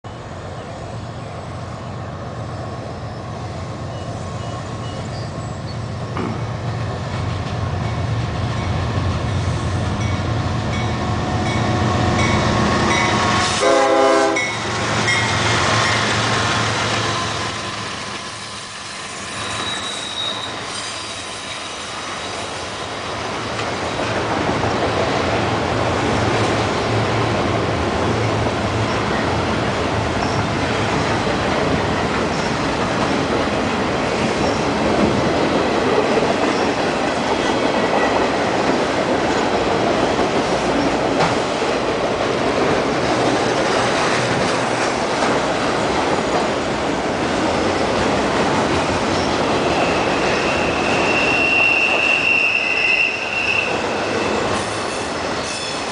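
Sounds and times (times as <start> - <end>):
diesel locomotive engines: 0.1 - 55.9
train horn blast: 13.4 - 14.6.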